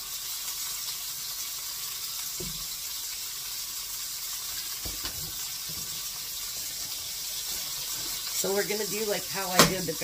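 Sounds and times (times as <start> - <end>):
patties sizzling in a frying pan: 0.0 - 10.0.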